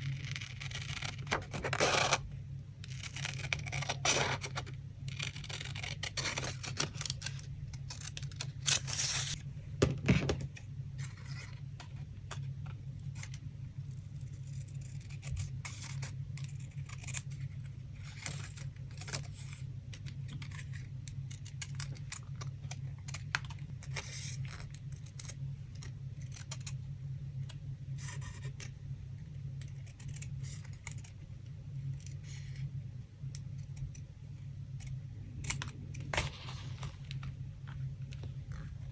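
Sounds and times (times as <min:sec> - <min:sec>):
steady low hum: 0:00.0 - 0:38.9
paper rustling and scraping: 0:36.1 - 0:38.9.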